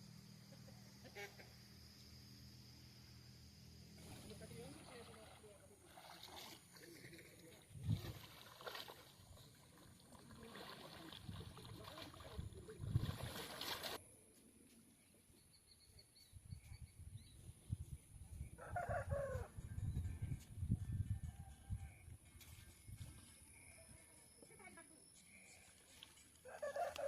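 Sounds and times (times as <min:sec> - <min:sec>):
rooster crowing: 0:18.6 - 0:19.6, 0:26.4 - 0:27.0.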